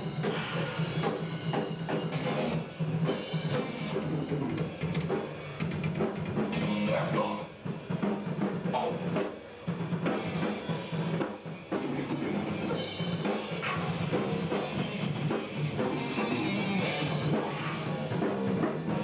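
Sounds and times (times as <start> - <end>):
drum kit: 0.0 - 19.0
rock music: 0.0 - 19.0.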